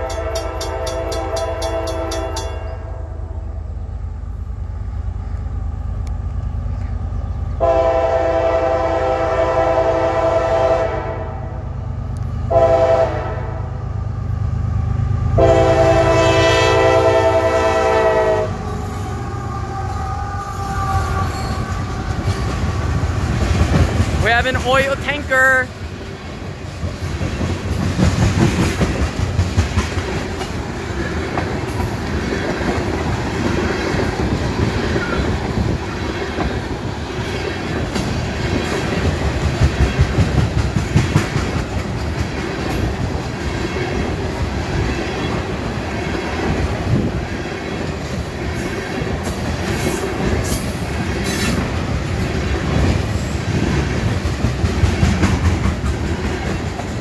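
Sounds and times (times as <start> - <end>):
train wheels rumbling on rails: 0.0 - 57.0
high wheel squeals: 18.7 - 22.5
wheels clacking over rail joints: 21.0 - 25.0, 26.0 - 57.0.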